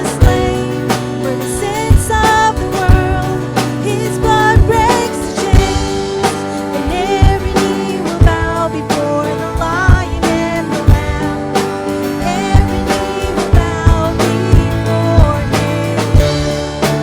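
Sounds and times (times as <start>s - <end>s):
drum hits: 0.0s - 17.0s
live band playing: 0.0s - 17.0s
person singing: 0.0s - 17.0s.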